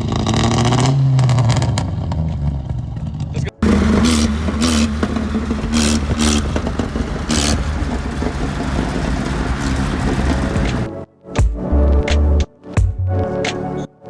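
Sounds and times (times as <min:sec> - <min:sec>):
car engine revving: 0:03.6 - 0:10.9.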